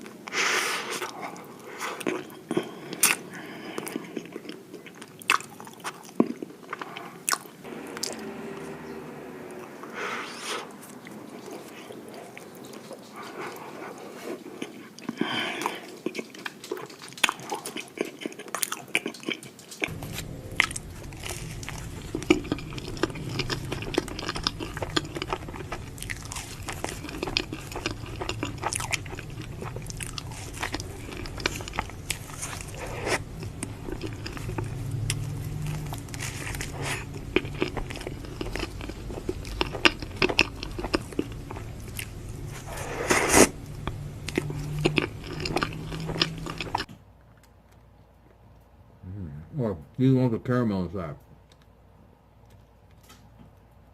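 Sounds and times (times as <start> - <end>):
biting and chewing ice cream: 0.0 - 48.7
steady low hum: 7.6 - 14.7, 19.8 - 46.9.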